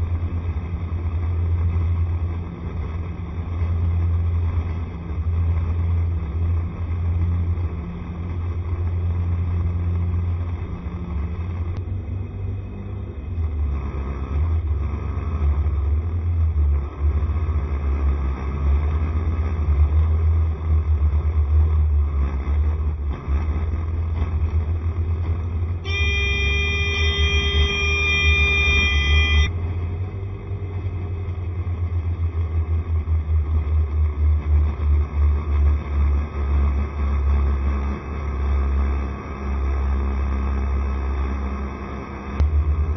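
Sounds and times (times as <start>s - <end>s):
low rumble of travel noise: 0.0s - 42.9s
wind and road noise: 0.0s - 42.9s
scooter engine running: 25.8s - 29.6s
vehicle horn held note: 25.8s - 29.6s.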